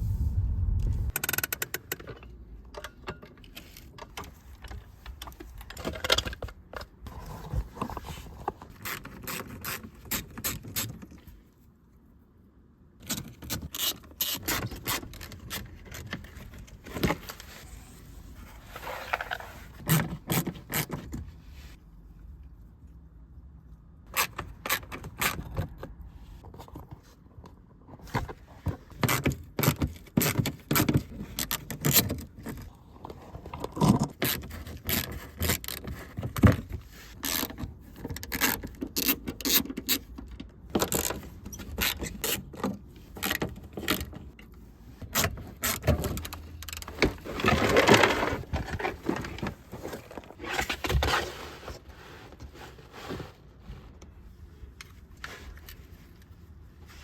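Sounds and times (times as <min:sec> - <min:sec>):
scraping rustle: 0:43.0 - 0:57.0.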